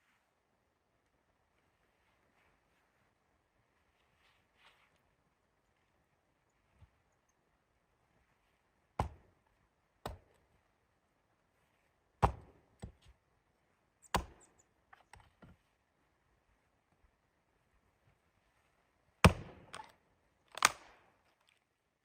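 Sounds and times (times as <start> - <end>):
sharp knocks on wood: 9.0 - 9.3.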